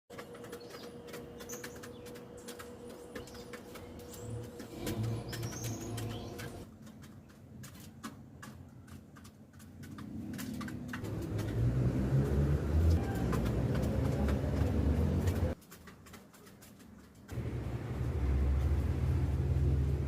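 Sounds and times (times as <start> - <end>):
chirps: 0.1 - 6.6
low rumbling noise: 17.4 - 20.0.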